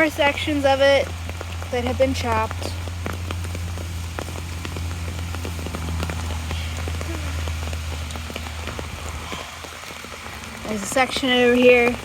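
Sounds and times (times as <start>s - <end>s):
low rumble: 0.0s - 9.4s
raindrops ticking close by: 0.0s - 12.0s.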